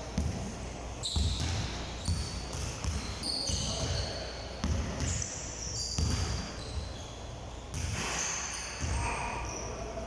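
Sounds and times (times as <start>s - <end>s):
basketball bouncing on court: 0.1s - 5.2s, 6.0s - 6.9s, 7.7s - 8.2s
sneakers squeaking on floor: 1.0s - 9.8s.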